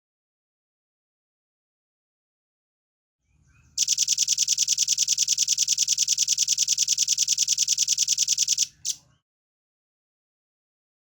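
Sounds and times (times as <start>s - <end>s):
bird singing fast trill: 3.8s - 9.0s.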